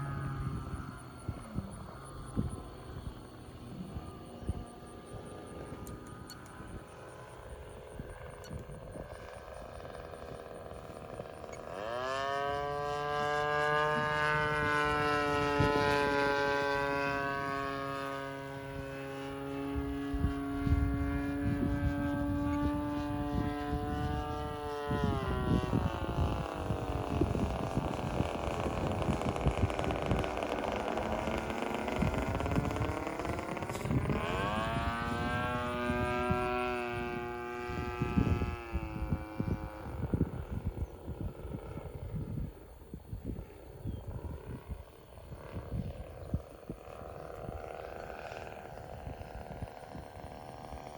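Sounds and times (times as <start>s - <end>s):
model airplane engine revving: 0.0s - 50.9s
wind buffeting microphone: 0.0s - 50.9s.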